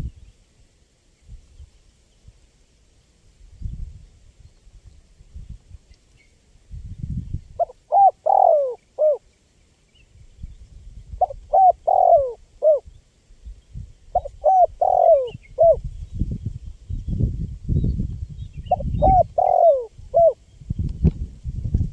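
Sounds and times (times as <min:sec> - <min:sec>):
dove cooing: 0:07.6 - 0:09.2, 0:11.2 - 0:12.9, 0:14.1 - 0:15.8, 0:18.7 - 0:20.4.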